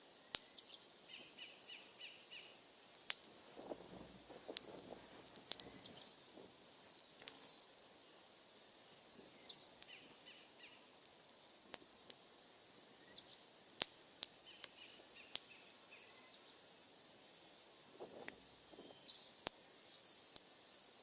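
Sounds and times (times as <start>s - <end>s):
wood fire crackling: 0.2s - 10.2s, 10.8s - 15.5s, 16.8s - 19.7s
sharp pops from fire: 2.8s - 8.1s, 13.6s - 15.5s, 17.8s - 19.6s.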